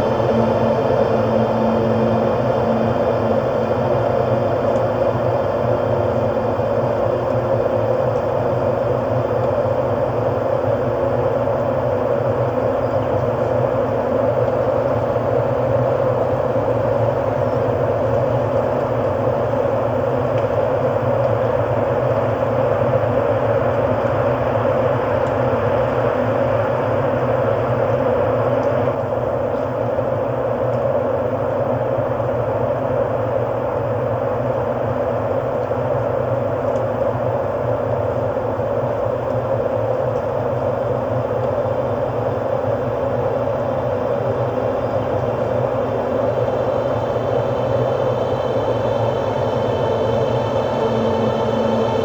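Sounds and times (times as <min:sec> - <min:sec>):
ambient drone music: 0:00.0 - 0:07.8, 0:44.6 - 0:52.0.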